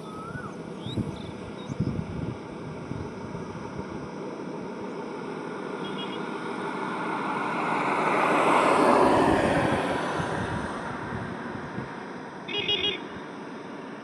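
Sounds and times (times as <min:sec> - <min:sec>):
highway traffic: 0:00.0 - 0:14.0
vehicle passing close by: 0:05.1 - 0:13.9
vehicle horn toot: 0:05.8 - 0:06.2, 0:12.5 - 0:13.1.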